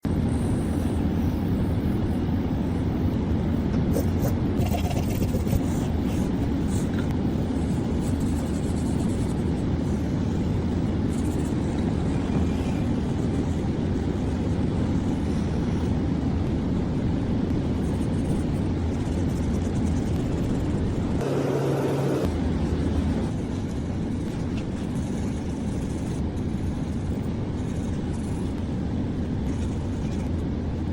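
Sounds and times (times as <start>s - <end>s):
vehicle rumble: 20.4s - 23.6s
short pitched tone: 21.2s - 22.3s.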